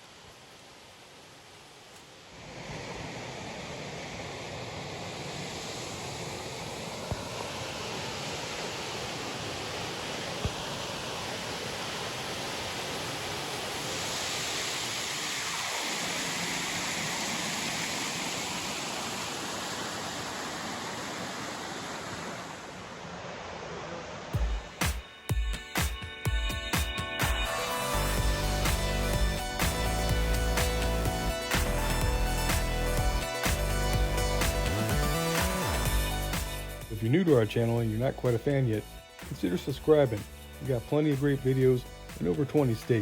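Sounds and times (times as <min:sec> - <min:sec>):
waterfall rushing: 0:02.3 - 0:24.8.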